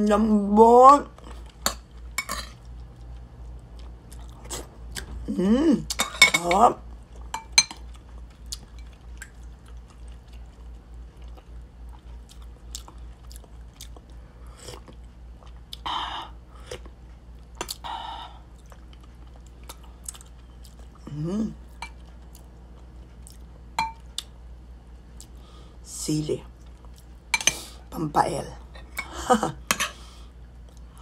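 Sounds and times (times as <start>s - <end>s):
person chewing: 1.2s - 5.1s, 6.9s - 15.9s, 16.5s - 24.4s, 25.1s - 25.4s, 26.6s - 27.8s.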